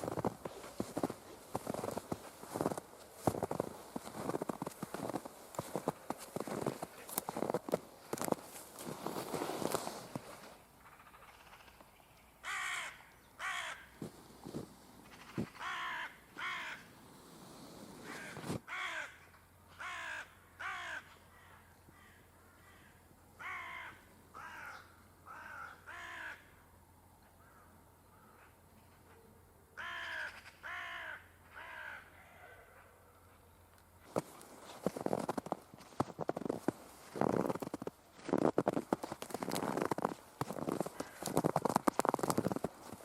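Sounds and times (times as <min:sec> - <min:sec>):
crow cawing: 0:12.4 - 0:14.0, 0:15.0 - 0:16.9, 0:18.0 - 0:26.6, 0:27.4 - 0:28.5, 0:29.8 - 0:32.8, 0:40.8 - 0:41.5.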